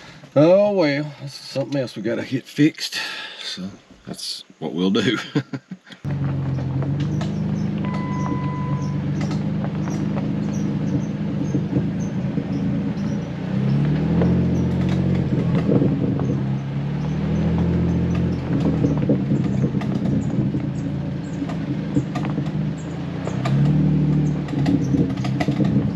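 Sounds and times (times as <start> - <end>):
car engine running: 6.0 - 25.9
rattles and knocks on gravel: 6.1 - 25.9
short beep: 7.8 - 9.2.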